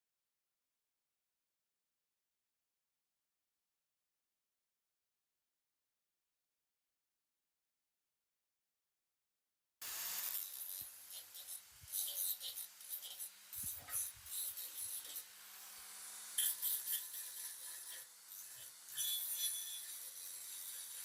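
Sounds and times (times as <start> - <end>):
hand scraping and rasping: 10.2 - 21.0.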